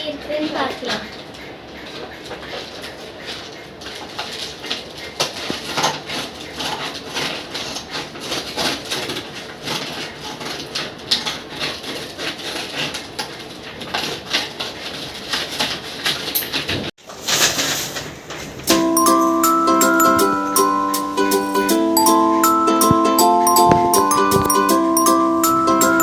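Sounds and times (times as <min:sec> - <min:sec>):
packaging rustling and crinkling: 0:02.6 - 0:18.8.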